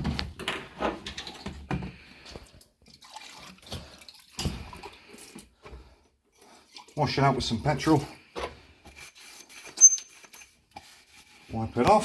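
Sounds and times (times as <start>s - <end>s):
liquid splashing and dripping: 2.0s - 5.6s.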